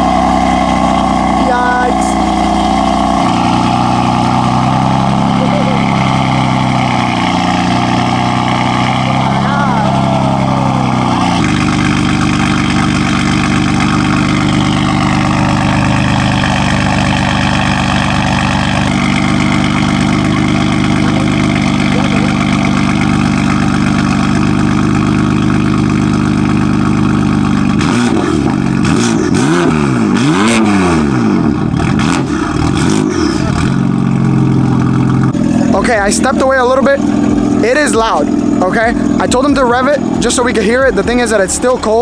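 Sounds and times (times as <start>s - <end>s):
car engine idling: 0.0s - 42.0s
engine revving in quick blips: 27.7s - 42.0s.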